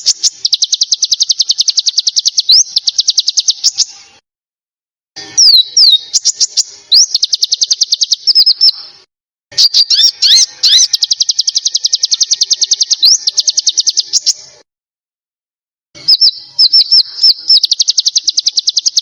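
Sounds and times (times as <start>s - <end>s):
songbird singing whistles and trills: 0.0s - 4.1s, 5.4s - 14.6s, 16.0s - 19.0s.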